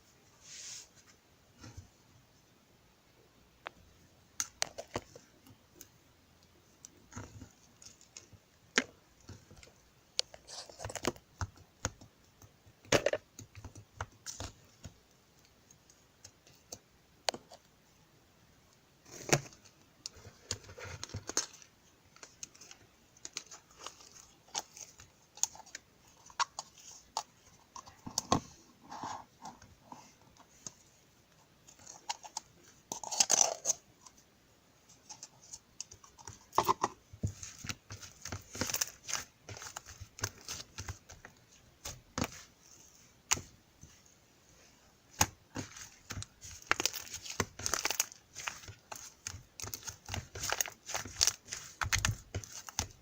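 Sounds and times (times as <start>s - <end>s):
small objects clicking and tapping: 4.4s - 17.7s, 35.0s - 42.5s, 45.1s - 53.0s.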